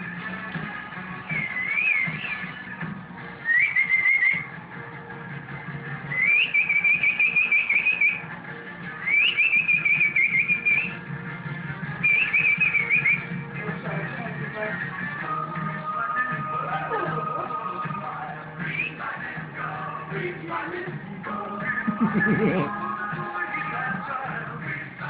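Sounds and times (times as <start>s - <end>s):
high warbling whistling: 1.3s - 2.6s, 3.5s - 4.5s, 6.1s - 8.3s, 9.0s - 11.0s, 12.0s - 13.3s.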